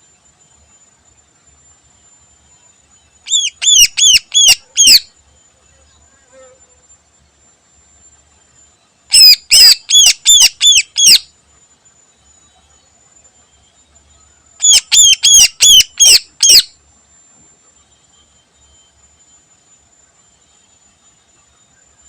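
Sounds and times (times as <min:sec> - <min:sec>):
bird singing sharp call notes: 0:03.3 - 0:05.1, 0:09.1 - 0:11.2, 0:14.6 - 0:16.7.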